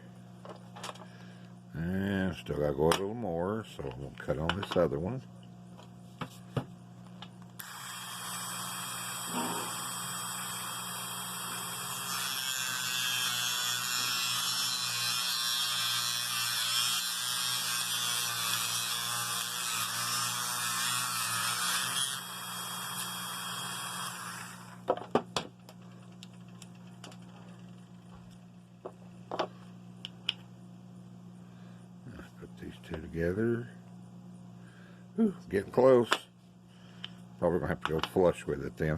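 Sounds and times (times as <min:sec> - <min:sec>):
power tool cutting plastic: 0:07.6 - 0:24.9.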